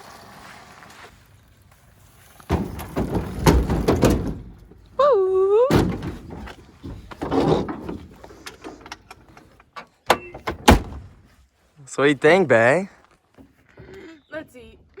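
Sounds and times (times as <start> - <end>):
loud thump: 2.5 - 4.8, 5.7 - 8.8, 10.1 - 11.3
knocks and thuds: 2.5 - 4.9, 5.7 - 11.3.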